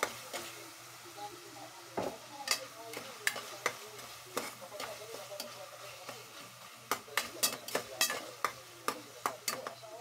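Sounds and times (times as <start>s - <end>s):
meat sizzling in a pot: 0.0s - 10.0s
spatula scraping a pot: 2.4s - 9.7s.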